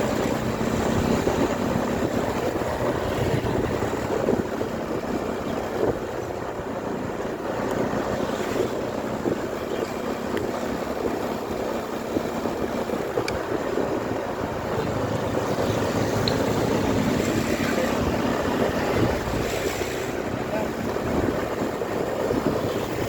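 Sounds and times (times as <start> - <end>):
motorcycle engine and road noise: 0.0 - 23.0
wind rushing over microphone: 0.0 - 23.0.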